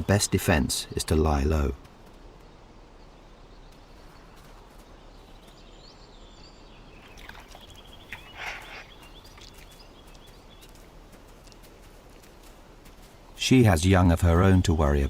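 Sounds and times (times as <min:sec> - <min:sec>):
faint high bird chirps: 0:02.3 - 0:12.5.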